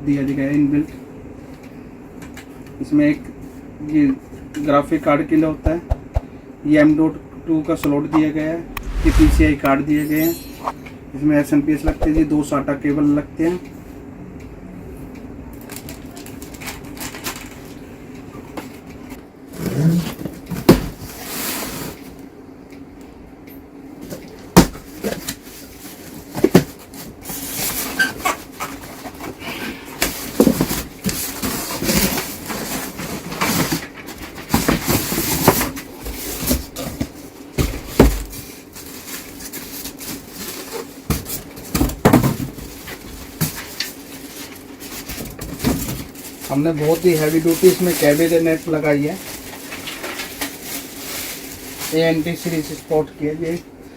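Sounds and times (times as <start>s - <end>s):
steady low hum: 8.4s - 10.8s.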